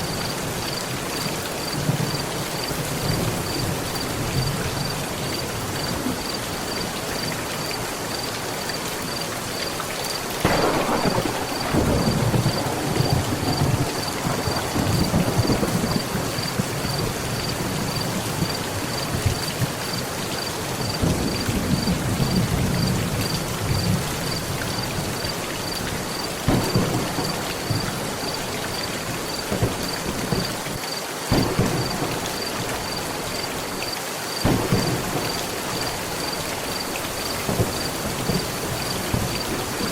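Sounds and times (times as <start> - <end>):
heavy rain on a metal roof: 0.0 - 39.9
sharp thunder claps: 10.4 - 18.6, 26.4 - 28.8, 31.3 - 33.0, 34.4 - 36.0
thunder rumbling: 10.4 - 19.8, 26.4 - 30.6, 31.3 - 33.7, 34.4 - 36.8.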